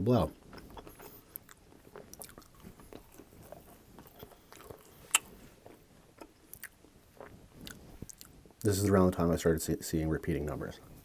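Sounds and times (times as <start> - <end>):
chewing pizza: 0.0 - 8.7.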